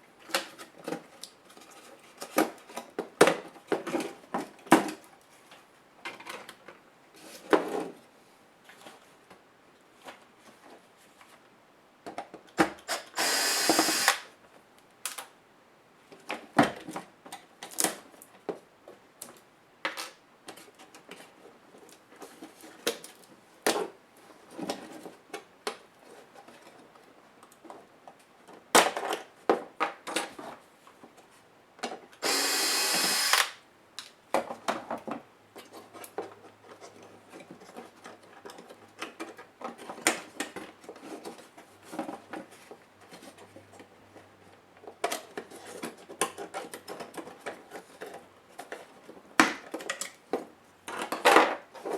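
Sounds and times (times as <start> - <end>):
electric screwdriver running: 12.9 - 14.3, 32.2 - 33.6.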